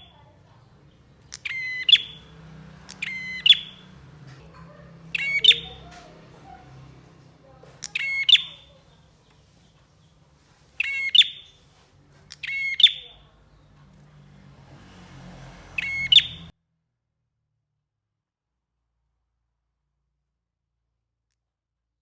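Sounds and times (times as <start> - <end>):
bird sharp chirps: 0.8 - 4.2, 5.0 - 6.6, 7.6 - 8.9, 10.8 - 11.6, 12.2 - 13.8, 15.7 - 16.5.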